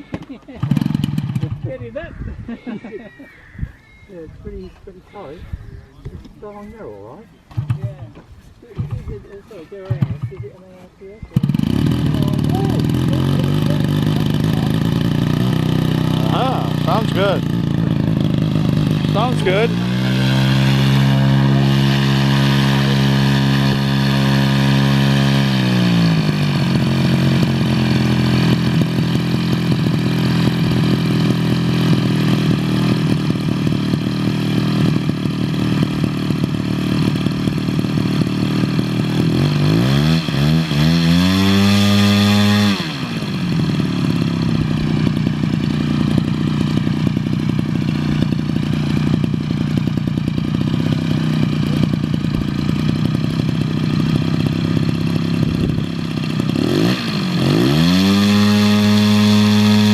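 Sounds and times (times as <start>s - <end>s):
model plane engine revving: 0.0s - 1.6s, 11.3s - 59.9s.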